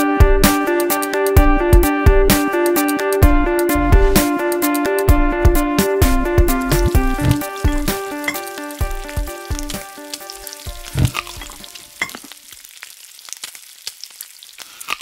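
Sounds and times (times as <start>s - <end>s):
music with steady beat: 0.0s - 10.1s
food sizzling in a pan: 6.6s - 15.0s.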